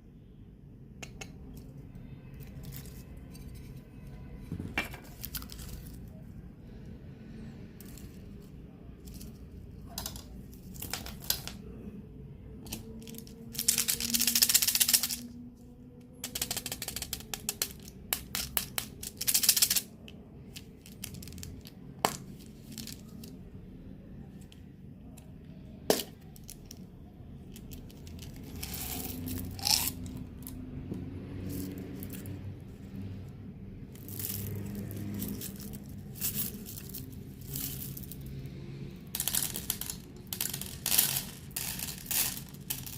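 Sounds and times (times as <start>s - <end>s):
plastic wrappers crinkling: 12.7s - 15.3s.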